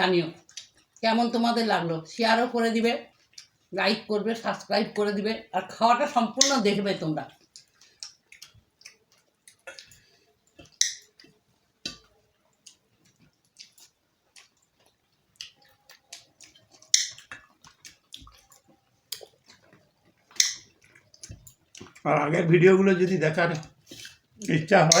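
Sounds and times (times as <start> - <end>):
chewing and lip smacks: 0.4 - 1.0, 3.0 - 3.7, 7.3 - 22.1, 23.5 - 25.0.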